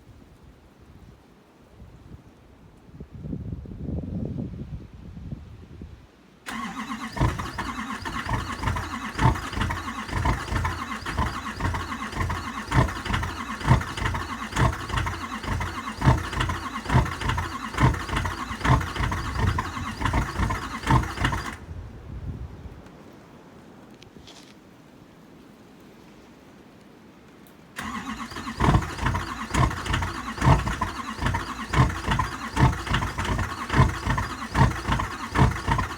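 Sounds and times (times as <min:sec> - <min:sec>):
diesel engine cold start clatter: 0:06.5 - 0:21.7, 0:27.8 - 0:35.9.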